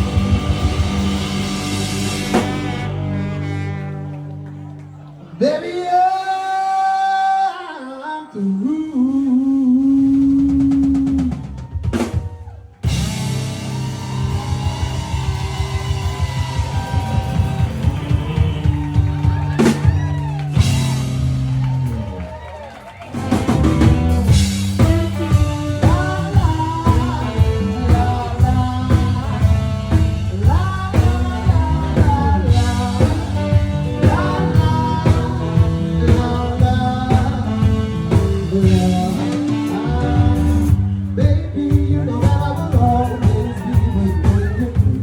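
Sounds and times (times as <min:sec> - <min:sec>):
blues-rock band playing: 0:00.0 - 0:05.1, 0:11.0 - 0:45.0
electric guitar lead bending: 0:00.0 - 0:05.1, 0:12.9 - 0:21.8.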